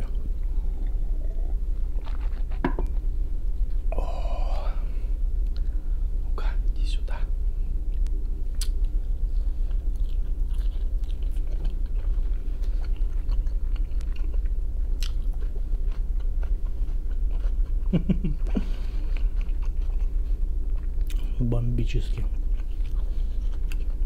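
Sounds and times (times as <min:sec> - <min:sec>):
person chewing: 0:00.0 - 0:03.0, 0:07.9 - 0:21.4, 0:22.1 - 0:24.0
steady low hum: 0:00.0 - 0:24.0
low vocal sound: 0:03.9 - 0:05.2
wet mouth clicks and smacks: 0:08.6 - 0:08.9.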